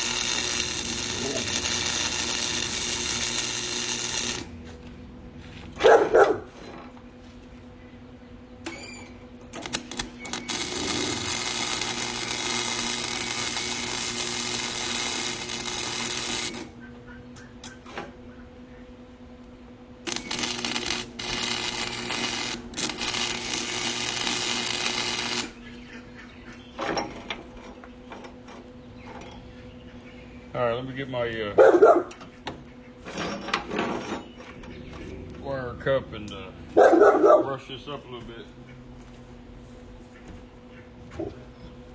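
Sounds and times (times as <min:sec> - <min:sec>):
electric arc welding crackling: 0:00.0 - 0:04.6, 0:09.6 - 0:16.8, 0:20.0 - 0:25.6
welder humming: 0:00.0 - 0:05.8, 0:08.4 - 0:18.3, 0:19.2 - 0:26.2.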